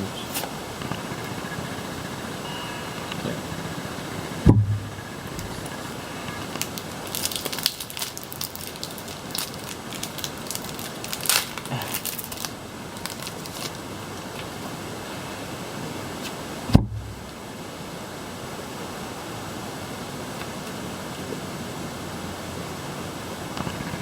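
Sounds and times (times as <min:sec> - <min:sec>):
dull thump: 0:04.4 - 0:05.6, 0:16.7 - 0:17.3
foil wrapper crinkling: 0:05.4 - 0:13.9.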